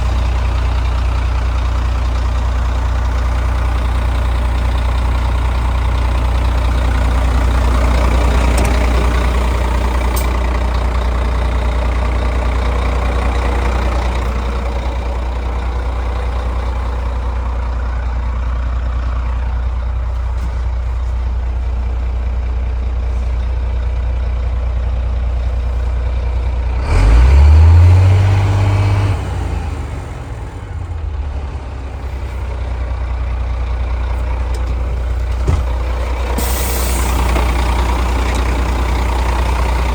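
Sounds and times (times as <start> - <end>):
diesel truck engine idling: 0.0 - 39.9
engine revving: 26.8 - 32.1.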